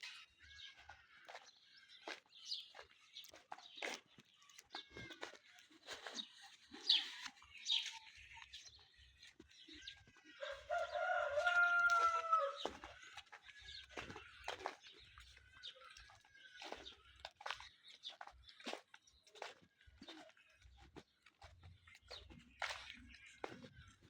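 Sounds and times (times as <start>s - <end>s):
small birds chirping: 0.0s - 24.0s
rooster crowing: 10.4s - 12.8s.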